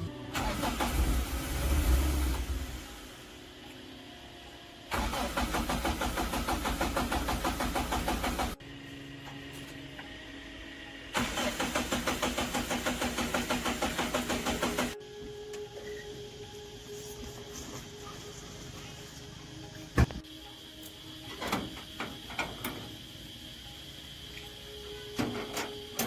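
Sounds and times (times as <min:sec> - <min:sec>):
truck engine starter cranking: 0:00.3 - 0:02.9, 0:04.9 - 0:08.6, 0:11.1 - 0:15.0.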